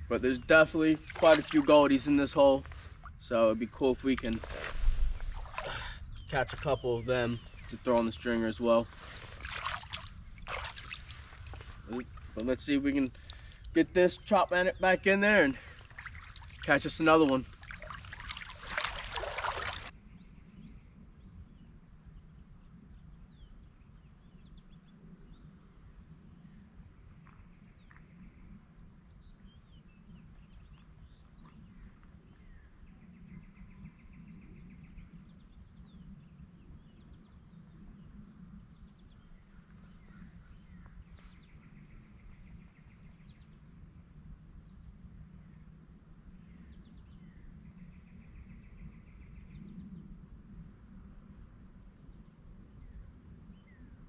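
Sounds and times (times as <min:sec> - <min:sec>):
steady low rumble: 0:00.0 - 0:24.2
bird chirps: 0:04.0 - 0:20.9.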